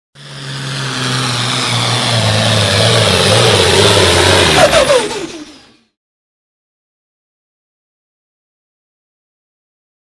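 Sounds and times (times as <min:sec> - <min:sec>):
falling tones: 0:00.2 - 0:05.8
tractor engine running under load: 0:00.2 - 0:05.9.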